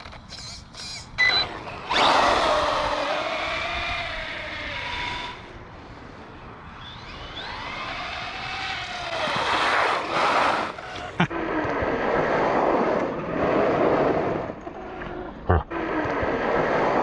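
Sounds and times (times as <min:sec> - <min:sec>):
electric motor whine: 0:00.3 - 0:05.7, 0:06.3 - 0:11.3.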